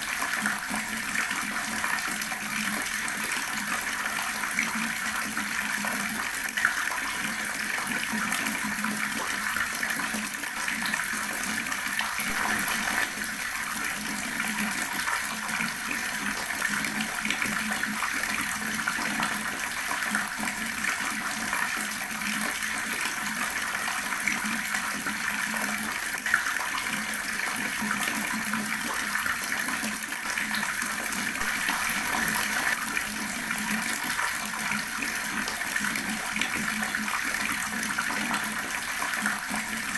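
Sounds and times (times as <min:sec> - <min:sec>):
water running from a tap: 0:00.0 - 0:39.9.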